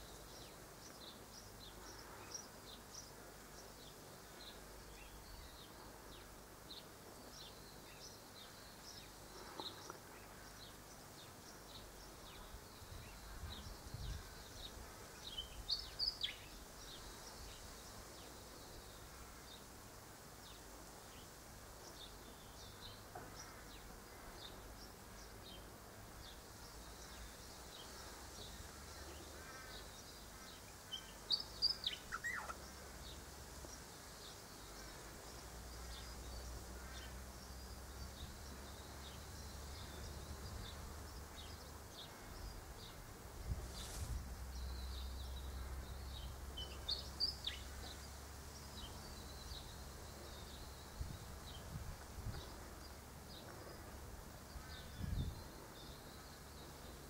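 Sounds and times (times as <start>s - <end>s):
sharp high bird calls: 31.6s - 32.6s.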